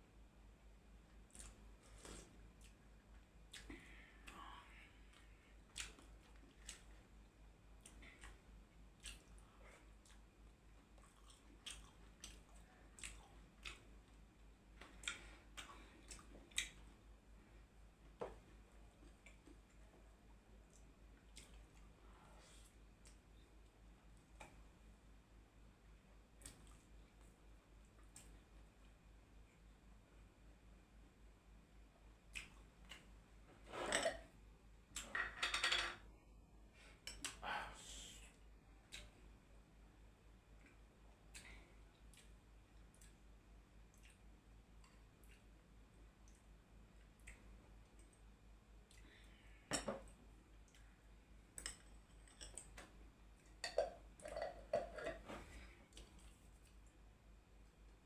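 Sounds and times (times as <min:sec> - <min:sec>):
person chewing food: 0:01.3 - 0:02.8, 0:03.5 - 0:07.1, 0:07.8 - 0:17.0, 0:20.6 - 0:22.0, 0:40.6 - 0:45.6, 0:46.2 - 0:48.2.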